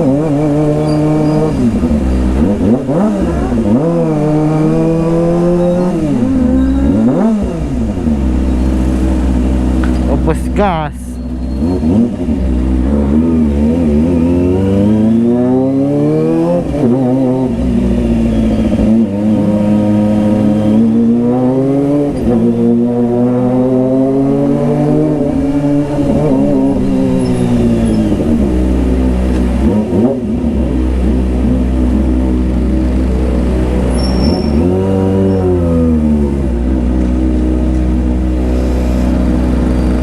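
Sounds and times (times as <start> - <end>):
motorcycle engine at full throttle: 0.0 - 10.5, 11.2 - 40.0.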